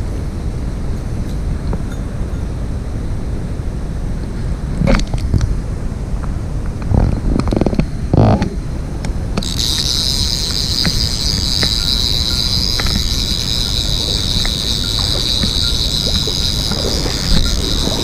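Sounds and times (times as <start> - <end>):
stream water running: 9.3 - 18.0
high-pitched buzz: 9.4 - 18.0.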